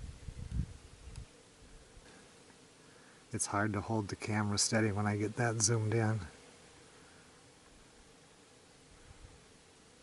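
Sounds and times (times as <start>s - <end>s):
wind buffeting microphone: 0.0s - 1.2s.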